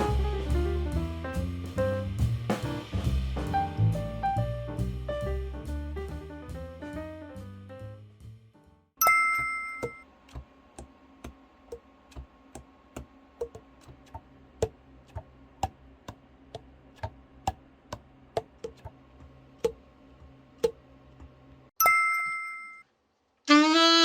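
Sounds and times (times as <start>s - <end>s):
chime tone: 9.0s - 10.0s, 21.8s - 22.8s.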